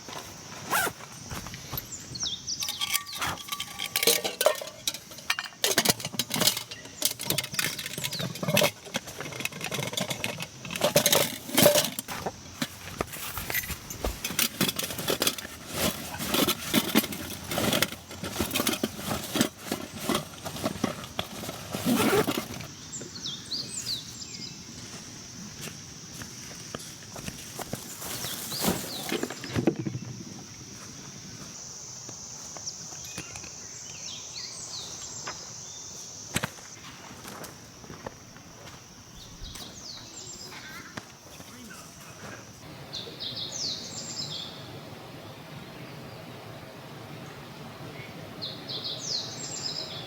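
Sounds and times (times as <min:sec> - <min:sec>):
gear rustling: 0:00.1 - 0:22.7
metallic clinks and knocks: 0:02.6 - 0:12.2, 0:13.4 - 0:15.5.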